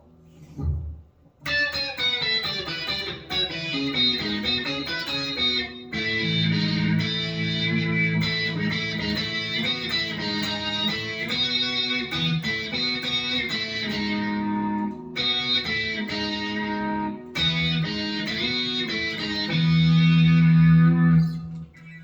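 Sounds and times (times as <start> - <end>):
synth guitar lead line: 1.4 - 22.0.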